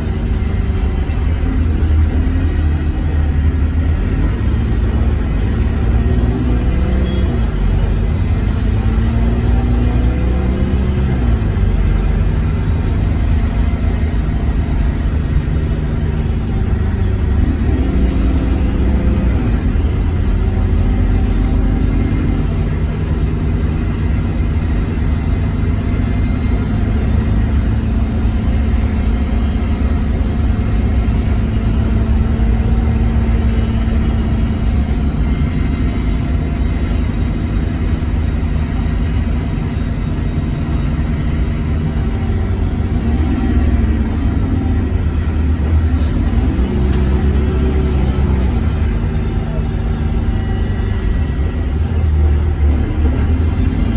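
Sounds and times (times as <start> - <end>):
bus diesel engine running: 0.0 - 53.9.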